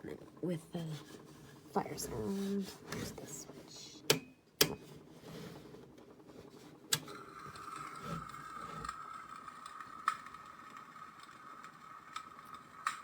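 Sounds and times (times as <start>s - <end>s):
heater switch clicks: 4.0s - 4.8s
tinny fire-crackle sound effect: 7.1s - 13.0s.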